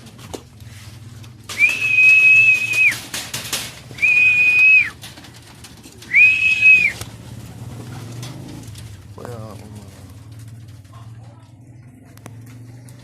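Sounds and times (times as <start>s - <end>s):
long high-pitched whistles: 4.0s - 4.9s, 6.1s - 7.0s.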